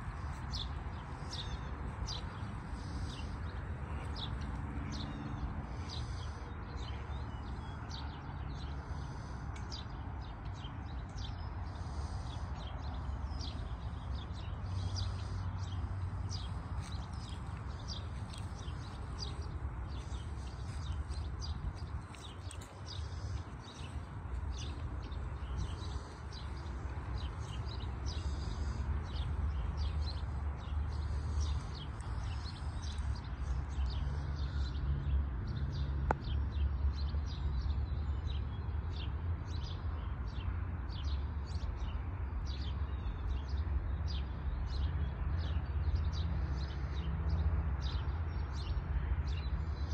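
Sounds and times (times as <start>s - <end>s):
small birds chirping: 0.0s - 36.6s
steady low rumble: 12.2s - 33.1s.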